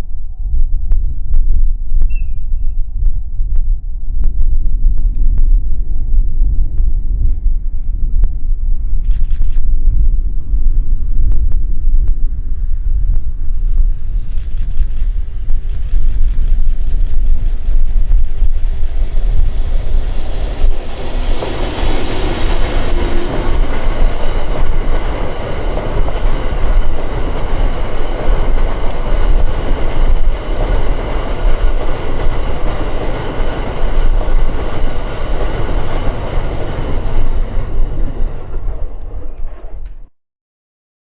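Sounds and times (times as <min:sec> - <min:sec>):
train wheels rumbling on rails: 0:04.9 - 0:40.1
high wheel squeal: 0:18.0 - 0:25.4.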